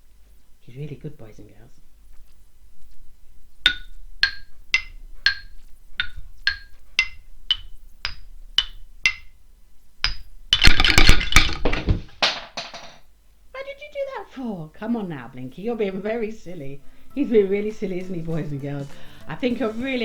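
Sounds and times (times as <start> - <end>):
toy xylophone notes: 3.7 - 9.3.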